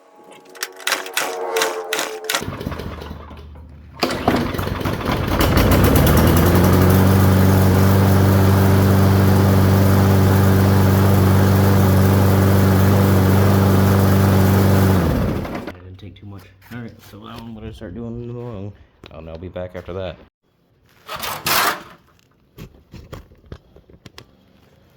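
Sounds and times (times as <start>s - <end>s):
lawn mower engine starting: 0.0s - 15.8s, 21.1s - 22.0s.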